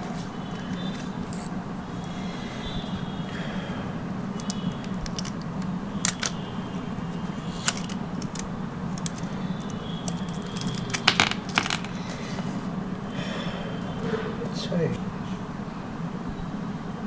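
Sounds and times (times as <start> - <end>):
steady low hum: 0.0 - 17.0
hard plastic clicking and knocking: 4.4 - 12.0.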